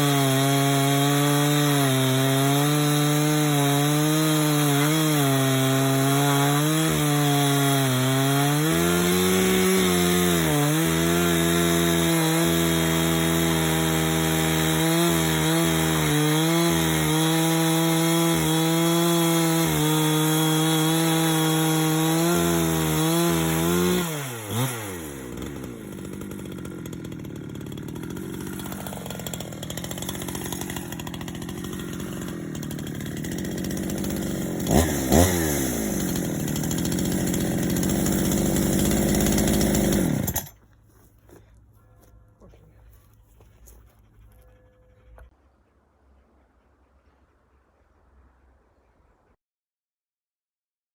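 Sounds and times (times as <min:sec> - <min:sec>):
chainsaw cutting wood: 0:00.0 - 0:40.7.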